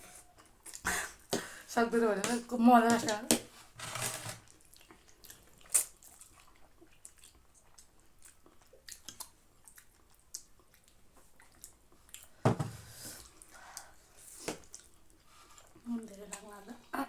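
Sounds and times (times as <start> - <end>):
people chewing and slurping noodles: 0.0 - 17.0
wet smacks and clicks: 4.9 - 12.3.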